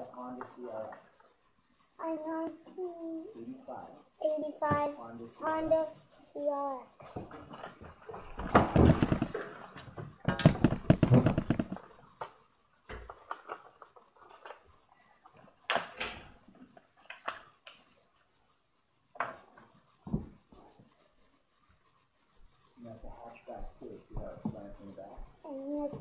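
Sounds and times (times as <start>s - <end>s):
plastic clicks and rustles: 7.2s - 17.9s.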